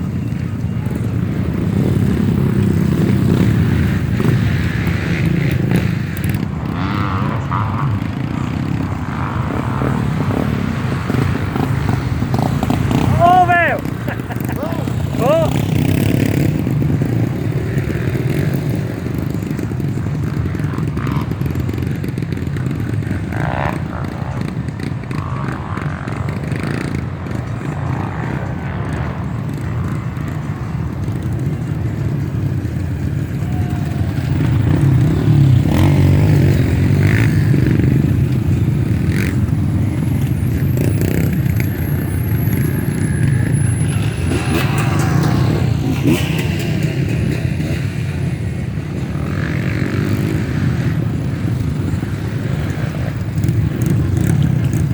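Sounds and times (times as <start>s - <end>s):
motorcycle engines running: 0.0s - 54.9s.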